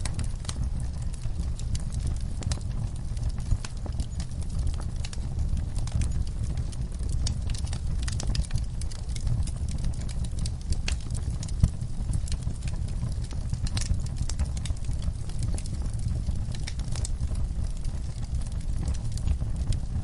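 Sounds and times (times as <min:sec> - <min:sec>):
low fire rumble: 0:00.0 - 0:20.0
wood fire crackling and popping: 0:00.0 - 0:20.0.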